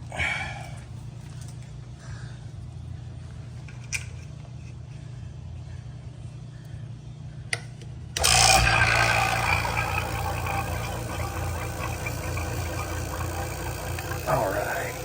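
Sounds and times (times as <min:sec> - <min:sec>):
vacuum pump running: 0:08.2 - 0:15.0.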